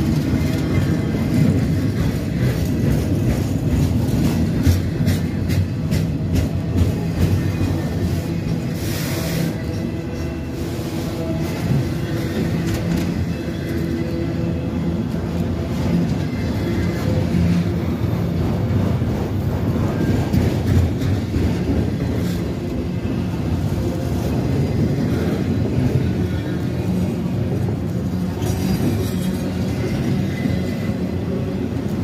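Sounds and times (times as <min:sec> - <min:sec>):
train rumbling past: 0:00.0 - 0:32.0.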